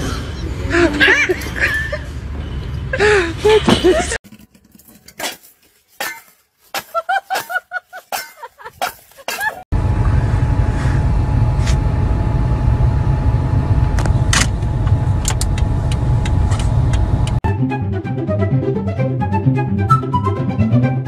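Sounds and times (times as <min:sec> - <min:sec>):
car engine rumble: 0:09.7 - 0:17.4.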